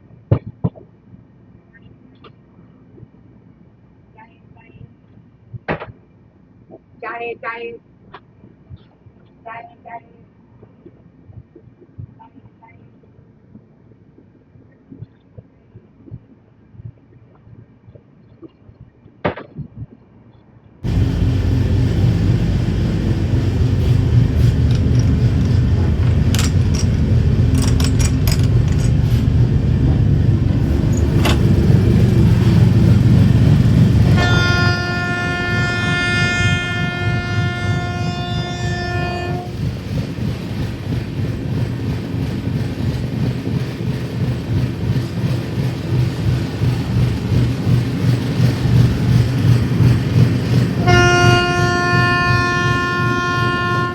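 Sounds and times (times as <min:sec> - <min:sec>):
train rumbling on rails: 0:20.8 - 0:53.9
train horn blast: 0:34.1 - 0:39.5, 0:50.8 - 0:53.9.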